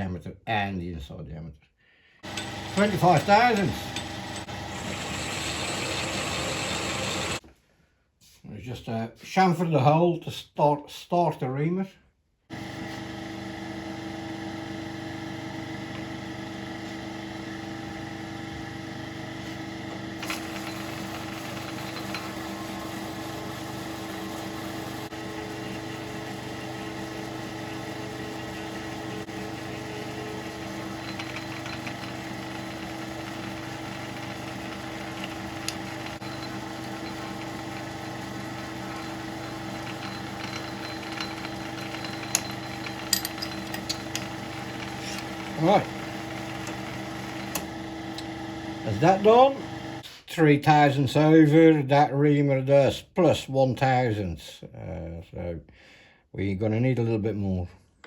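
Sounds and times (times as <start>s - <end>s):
metal lathe whine: 2.2s - 7.4s, 12.5s - 50.0s.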